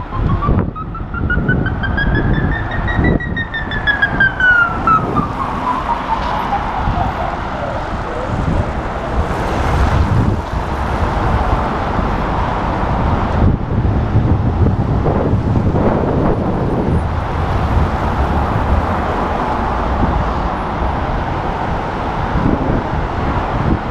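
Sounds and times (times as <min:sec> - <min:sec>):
siren gliding down in pitch: 0:00.0 - 0:09.2
city traffic noise: 0:00.0 - 0:23.9
wind on microphone: 0:00.0 - 0:23.9.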